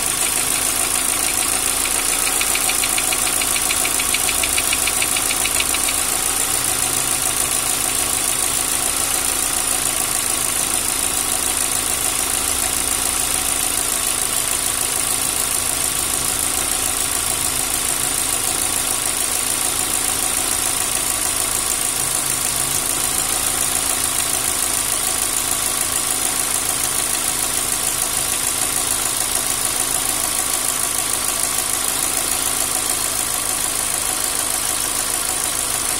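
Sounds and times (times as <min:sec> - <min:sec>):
valve lifters ticking: 0:00.0 - 0:06.8
car engine idling: 0:00.0 - 0:35.9.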